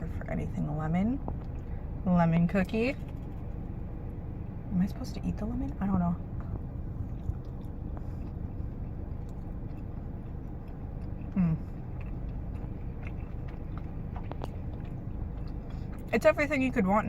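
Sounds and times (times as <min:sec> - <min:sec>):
car interior rumble: 0:00.0 - 0:17.0
person biting and chewing cookie: 0:06.4 - 0:16.1.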